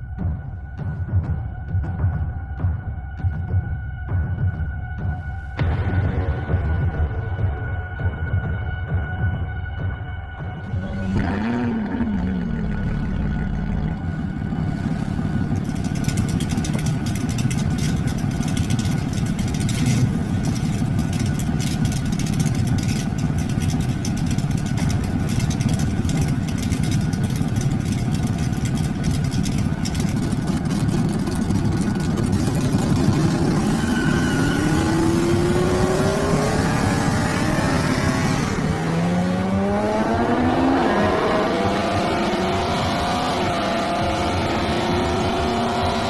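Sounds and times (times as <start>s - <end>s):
car engine idling and revving: 0.0s - 46.0s
exhaust crackling: 10.6s - 46.0s.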